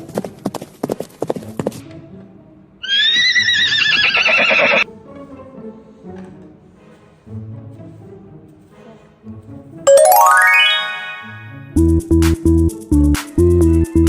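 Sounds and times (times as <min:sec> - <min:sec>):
horse hooves clip-clopping: 0:00.0 - 0:01.8
faint background music: 0:01.2 - 0:02.8, 0:04.8 - 0:11.8
horse whinnying: 0:02.8 - 0:04.8.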